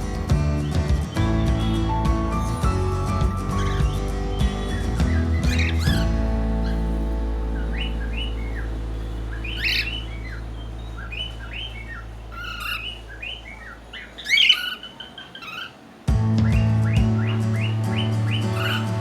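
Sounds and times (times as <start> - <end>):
low sustained music chord: 0.0 - 13.4
cockatiel chirping: 3.4 - 15.8, 16.4 - 19.0
cockatiel squawk: 9.3 - 15.8.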